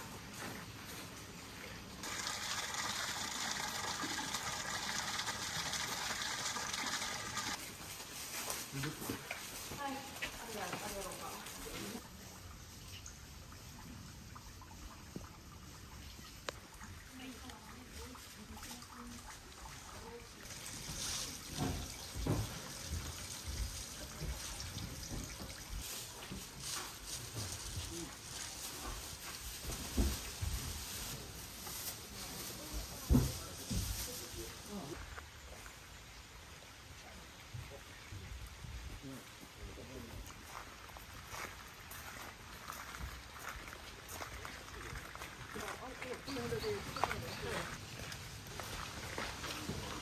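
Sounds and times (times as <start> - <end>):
water gushing: 1.4 - 7.6, 11.8 - 28.3.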